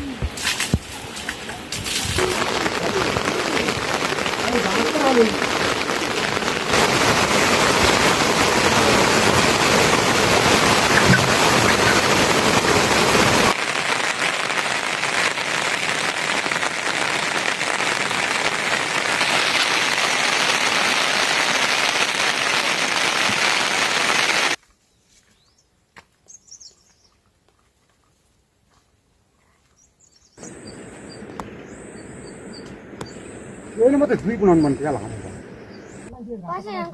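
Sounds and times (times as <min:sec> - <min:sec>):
heavy rain hissing: 0:00.0 - 0:24.6, 0:30.4 - 0:36.1
bird chirp: 0:24.8 - 0:27.3, 0:29.5 - 0:33.8, 0:34.4 - 0:36.1.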